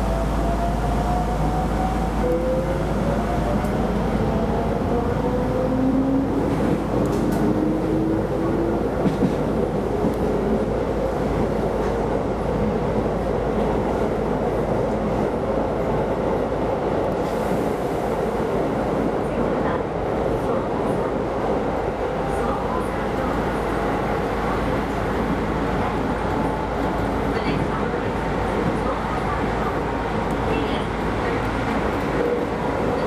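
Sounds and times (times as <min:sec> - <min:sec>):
electric train rolling rumble: 0:00.0 - 0:33.0.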